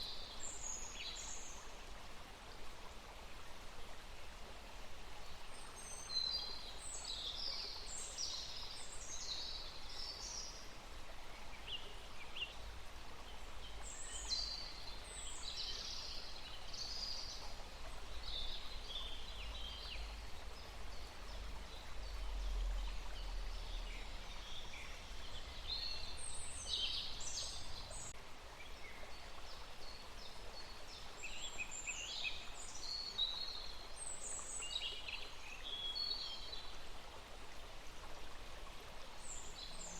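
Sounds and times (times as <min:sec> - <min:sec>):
steady outdoor hiss: 0:00.0 - 0:39.9
songbirds singing: 0:11.3 - 0:36.7.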